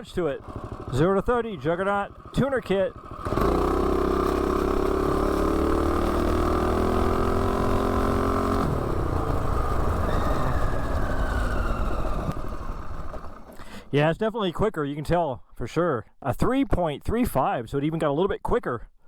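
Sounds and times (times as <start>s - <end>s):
minibike engine accelerating: 0.3s - 13.9s.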